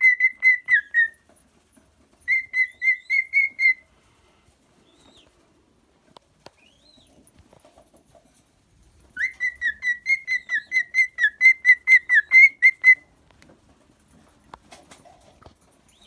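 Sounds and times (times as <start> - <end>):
cockatiel whistling: 0.0 - 1.2, 2.3 - 3.8, 9.2 - 13.0.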